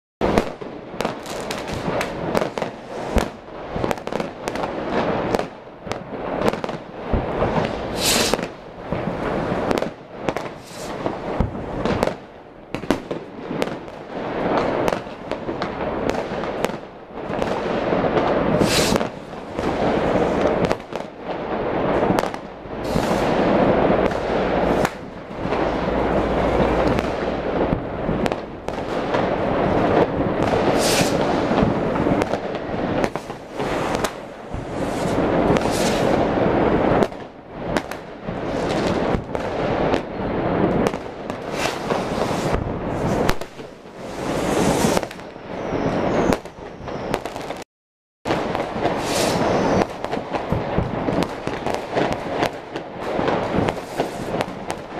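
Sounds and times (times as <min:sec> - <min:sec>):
distant fireworks rumble: 0:00.2 - 0:47.6, 0:48.3 - 0:54.9
fireworks bangs and crackles: 0:00.2 - 0:47.7, 0:48.3 - 0:54.9
rocket hisses: 0:07.8 - 0:08.4, 0:10.6 - 0:11.0, 0:18.5 - 0:19.2, 0:22.8 - 0:23.5, 0:30.6 - 0:31.5, 0:34.7 - 0:36.3, 0:48.9 - 0:49.8.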